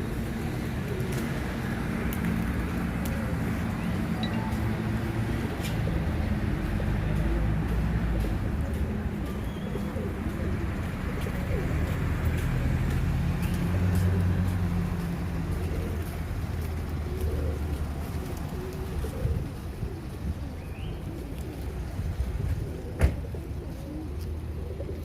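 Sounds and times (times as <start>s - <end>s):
pigeons cooing: 0.0s - 6.5s, 7.1s - 25.0s.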